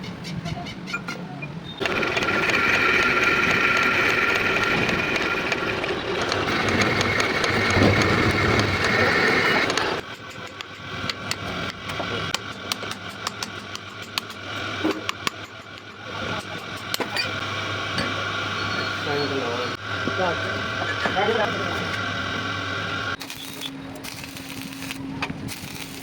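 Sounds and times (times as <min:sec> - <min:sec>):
rapid ticking: 0:01.8 - 0:11.3
workshop machine running loudly: 0:01.8 - 0:26.0.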